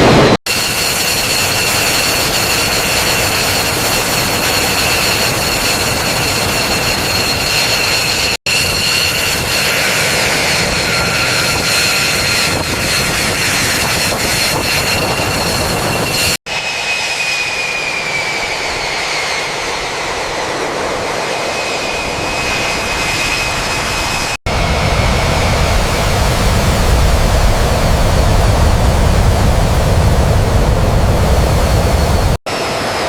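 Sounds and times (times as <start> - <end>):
jet engine rushing noise: 20.6 - 33.0
high steady whining tones: 24.5 - 32.4.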